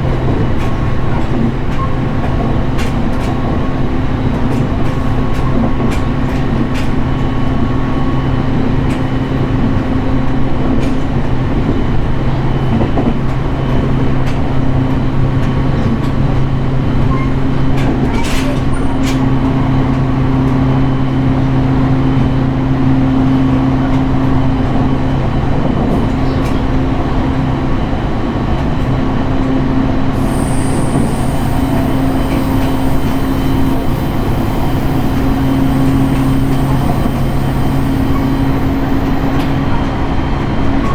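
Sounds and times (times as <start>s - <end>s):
train wheels rumbling on rail: 0.0s - 40.9s
motor hum: 30.2s - 39.7s
faint high whine: 30.2s - 39.8s.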